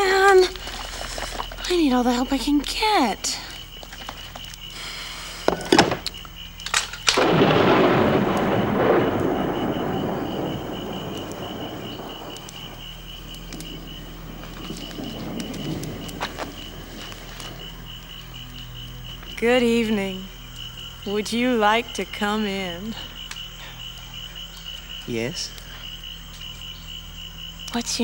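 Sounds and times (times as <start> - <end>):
faint high whine: 0.0 - 25.8
loud rolling rumble: 7.2 - 23.1.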